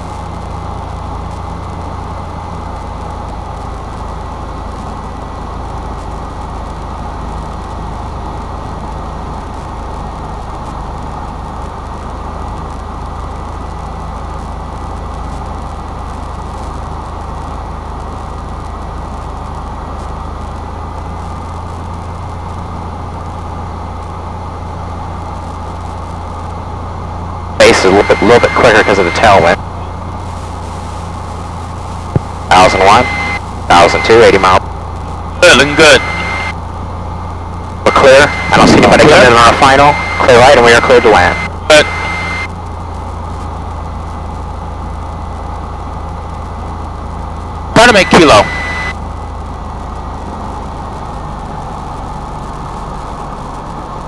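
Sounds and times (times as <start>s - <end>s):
plane engine and propeller drone: 0.0s - 30.2s, 31.6s - 54.0s
faint high whine: 0.0s - 54.0s.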